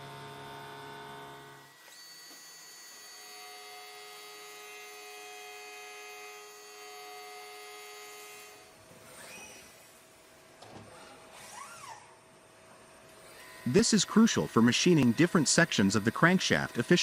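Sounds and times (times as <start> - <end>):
electrical machine hum: 0.0 - 1.8, 12.4 - 17.0.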